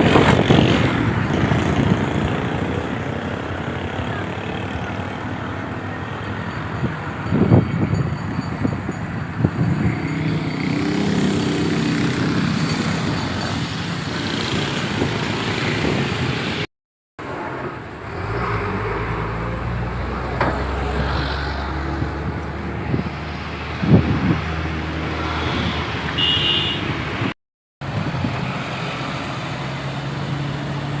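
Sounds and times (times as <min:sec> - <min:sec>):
motorcycle engine running: 0:00.0 - 0:16.5
road traffic noise: 0:00.0 - 0:31.0.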